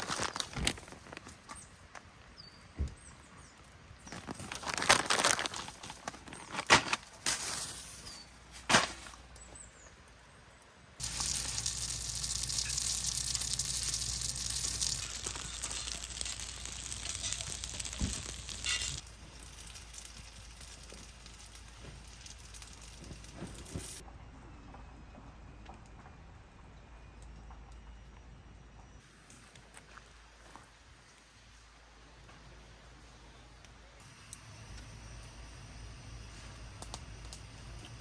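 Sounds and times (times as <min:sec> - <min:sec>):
faint hiss: 0:10.8 - 0:24.0
food sizzling in a hot pan: 0:11.0 - 0:24.0.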